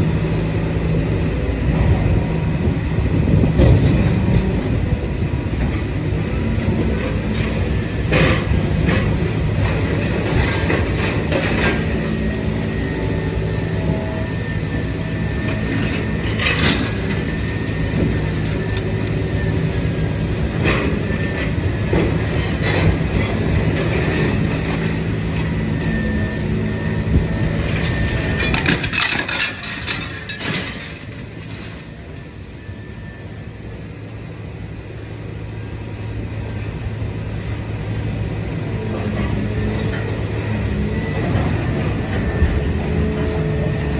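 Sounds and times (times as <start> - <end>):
scrap metal crunching and clanking: 27.4 - 32.2
metal clatter: 27.7 - 32.0.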